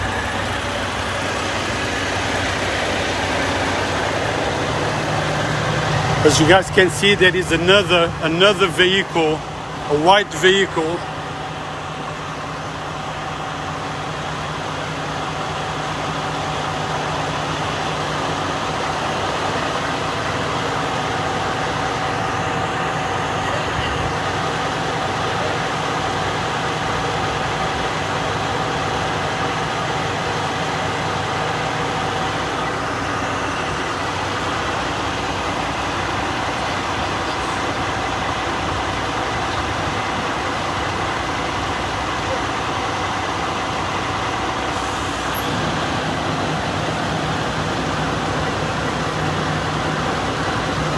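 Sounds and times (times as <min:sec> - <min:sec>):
heavy vehicle engine idling: 0:00.0 - 0:50.9.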